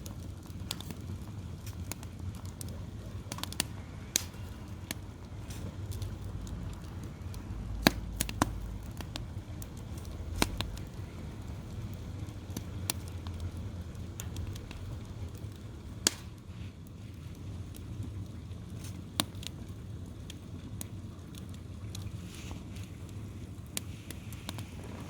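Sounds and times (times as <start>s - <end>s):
low steady rumble: 0.0s - 18.8s, 19.6s - 25.0s
burning logs popping: 0.0s - 25.0s
wood fire crackling: 0.0s - 25.0s.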